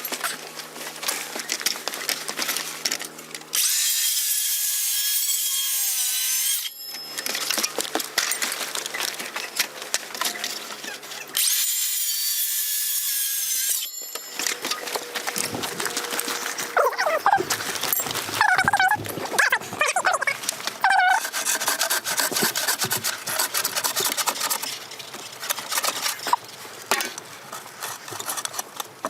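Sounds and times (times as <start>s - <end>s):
power tool cutting wood: 3.6s - 6.8s, 11.4s - 13.9s.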